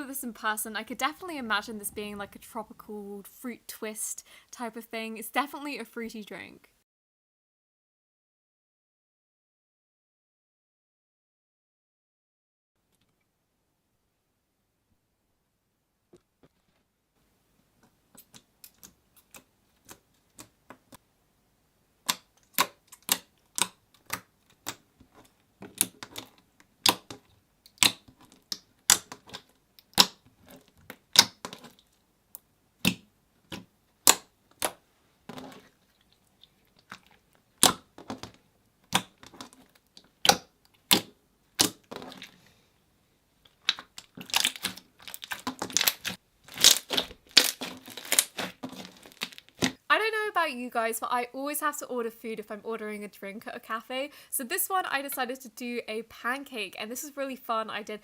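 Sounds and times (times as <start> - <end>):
slime wet clicking pops: 26.8 - 29.1.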